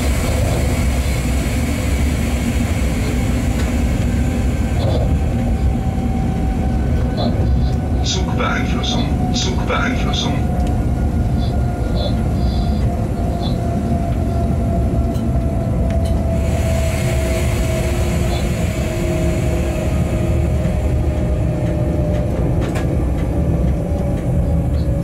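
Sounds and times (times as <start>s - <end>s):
train low rumble: 0.0s - 25.0s
hiss: 16.4s - 20.7s.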